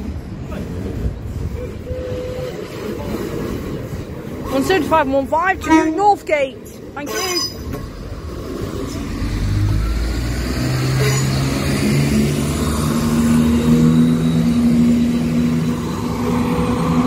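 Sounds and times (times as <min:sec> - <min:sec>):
large diesel engine accelerating: 0:07.9 - 0:17.0.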